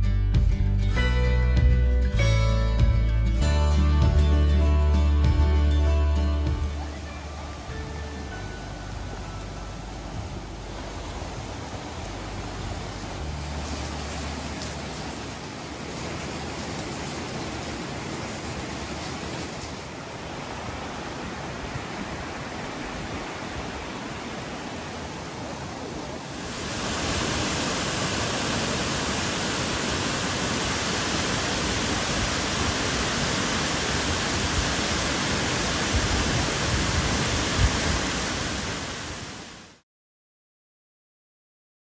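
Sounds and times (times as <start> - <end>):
waterfall rushing: 5.1 - 39.8
creek water rushing over rocks: 6.4 - 39.8.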